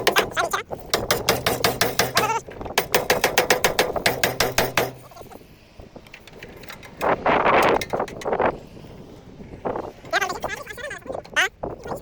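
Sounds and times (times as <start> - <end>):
rapid hammering on sheet metal: 0.0 - 5.3.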